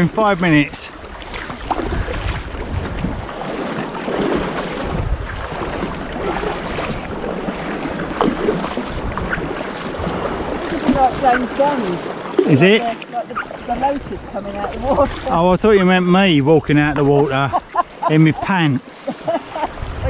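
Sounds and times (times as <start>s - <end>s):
paddles splashing in water: 0.0s - 20.0s
wind gusting on microphone: 0.3s - 12.6s, 19.6s - 20.0s.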